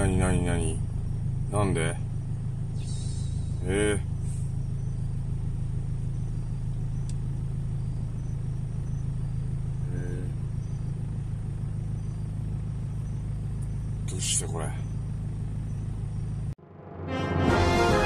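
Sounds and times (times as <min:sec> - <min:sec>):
car idling from inside cabin: 0:00.0 - 0:16.6.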